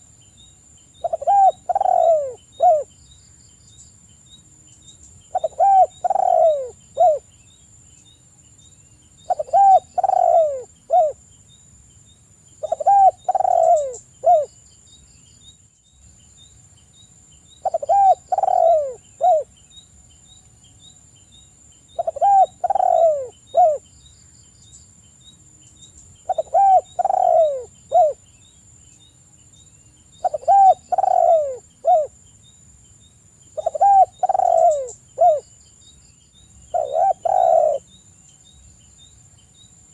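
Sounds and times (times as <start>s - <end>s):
dove cooing: 1.0s - 2.9s, 5.3s - 7.2s, 9.3s - 11.2s, 12.6s - 14.5s, 17.6s - 19.5s, 22.0s - 23.8s, 26.3s - 28.2s, 30.2s - 32.2s, 33.6s - 35.4s, 36.7s - 37.9s.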